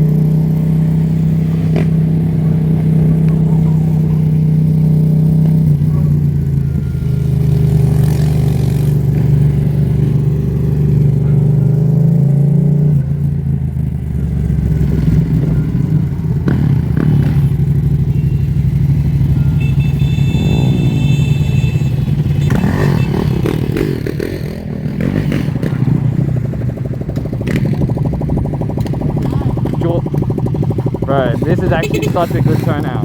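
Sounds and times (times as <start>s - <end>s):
motorcycle engines revving: 0.0s - 33.0s.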